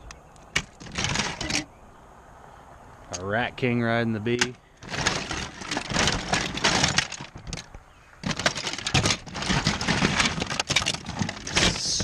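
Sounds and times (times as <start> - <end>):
plastic toys clattering: 0.4 - 1.7, 4.4 - 12.0.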